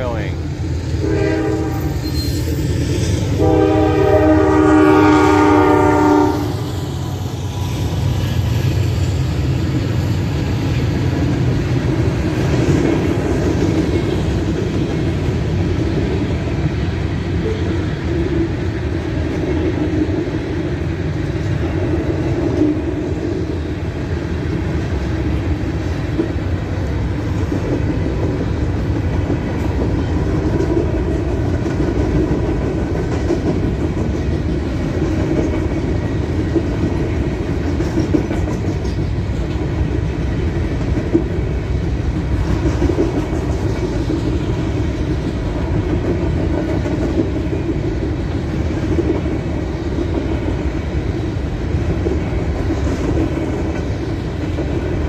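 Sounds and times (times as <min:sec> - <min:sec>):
train rumbling past: 0:00.0 - 0:55.0
locomotive air horn: 0:01.0 - 0:02.3, 0:03.4 - 0:06.6
wheels clattering on rails: 0:24.5 - 0:55.0.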